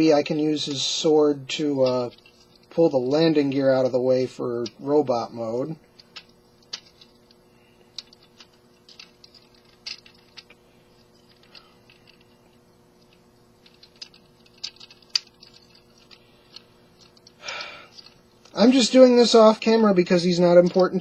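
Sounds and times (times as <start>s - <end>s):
plastic toy parts clicking: 7.9s - 10.6s, 13.6s - 18.6s.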